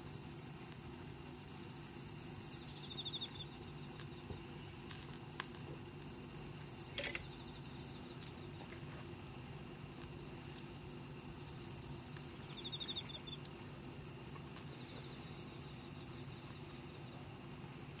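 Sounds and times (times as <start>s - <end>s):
crickets chirping: 0.1s - 18.0s.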